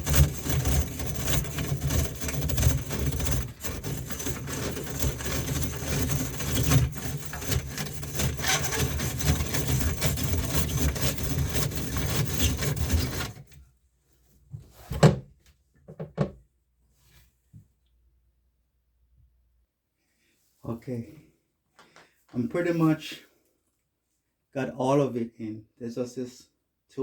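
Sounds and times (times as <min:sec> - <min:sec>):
drain snake rattling and scraping: 0:00.0 - 0:13.6.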